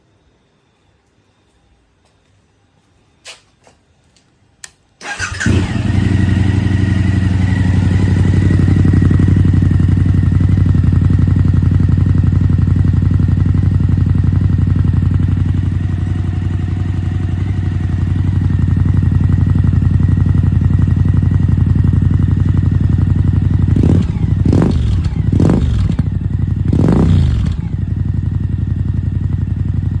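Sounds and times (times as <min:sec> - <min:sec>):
clicks: 0:04.2 - 0:04.8
motorcycle engine idling and revving: 0:05.0 - 0:30.0.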